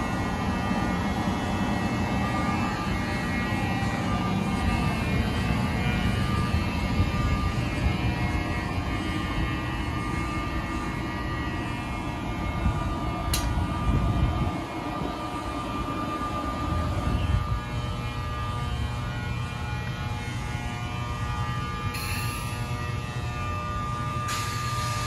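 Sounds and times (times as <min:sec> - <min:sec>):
electric train rumbling: 0:00.0 - 0:25.0
sharp click: 0:13.3 - 0:13.5.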